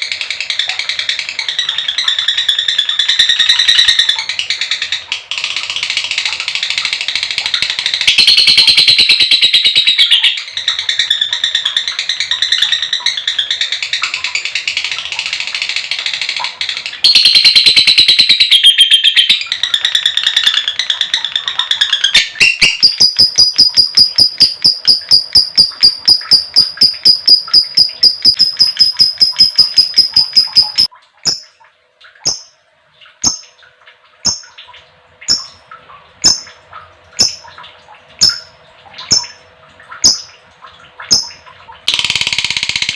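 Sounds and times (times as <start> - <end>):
lovebird chattering trill and chirps: 8.0 - 11.6, 17.0 - 31.5, 32.2 - 32.6, 35.3 - 35.6, 37.2 - 37.5, 38.2 - 38.5, 39.1 - 39.4.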